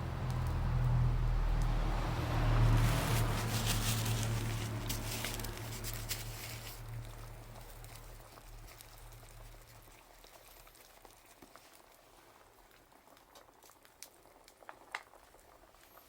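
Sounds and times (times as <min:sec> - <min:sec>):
low steady rumble: 0:00.0 - 0:10.6
campfire crackling and popping: 0:00.0 - 0:16.0.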